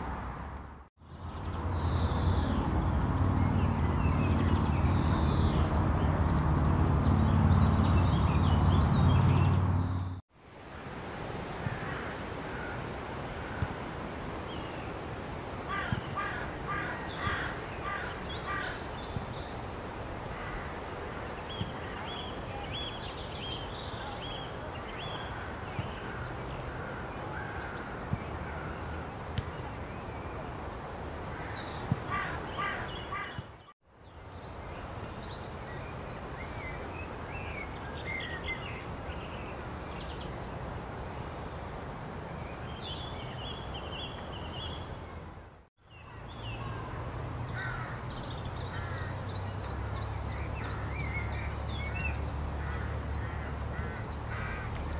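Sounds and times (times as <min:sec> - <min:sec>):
outdoor background noise: 0:00.0 - 0:54.9
songbirds chirping: 0:01.0 - 0:10.2, 0:11.6 - 0:54.9
harsh repeated bird calls: 0:15.7 - 0:18.9, 0:31.3 - 0:33.7.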